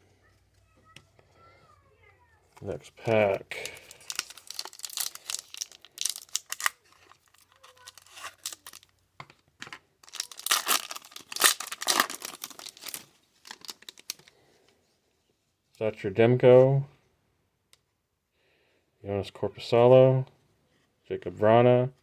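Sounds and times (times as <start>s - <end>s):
wrapper tearing and crinkling: 2.6s - 8.9s, 10.0s - 14.3s.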